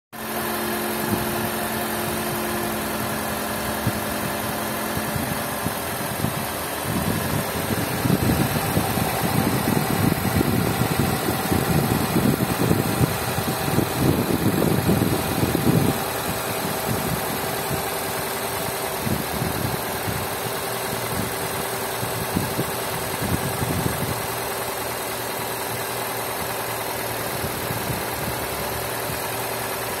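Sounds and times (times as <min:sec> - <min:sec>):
car engine idling: 0:00.2 - 0:30.0.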